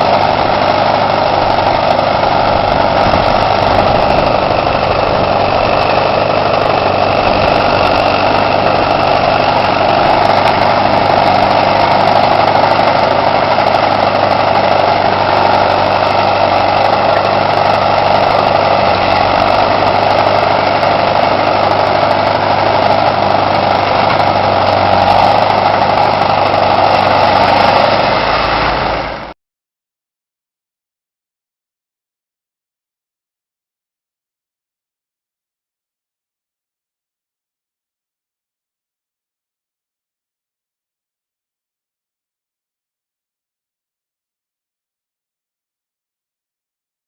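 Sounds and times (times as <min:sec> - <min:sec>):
vehicle engine running: 0:00.0 - 0:29.4.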